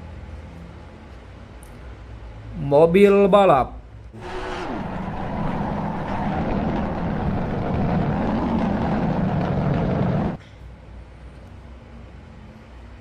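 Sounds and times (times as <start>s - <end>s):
toy race car whirring: 4.2s - 7.4s.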